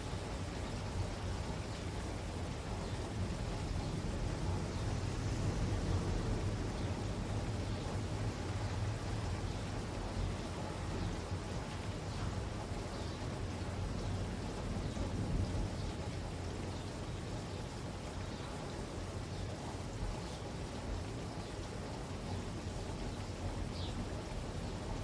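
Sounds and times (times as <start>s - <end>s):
faint rain drops: 0.0s - 25.0s
low constant rumble: 0.0s - 25.0s
steady rain falling: 0.0s - 25.0s.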